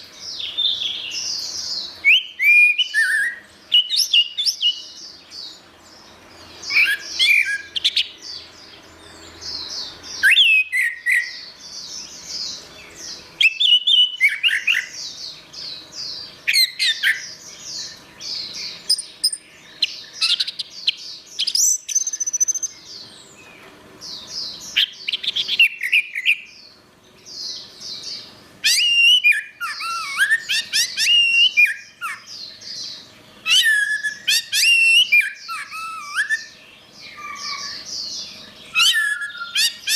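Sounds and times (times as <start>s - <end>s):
thrush singing whistled phrases: 2.0s - 4.9s, 6.7s - 8.1s, 10.2s - 11.5s, 13.4s - 15.0s, 18.9s - 22.8s, 28.6s - 32.3s, 33.4s - 36.6s, 38.7s - 39.9s.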